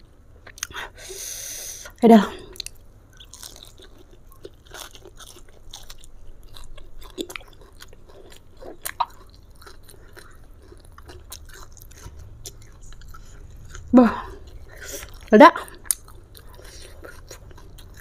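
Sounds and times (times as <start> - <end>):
chewing with wet clicks and crunches: 0.4 - 0.8, 2.5 - 18.0.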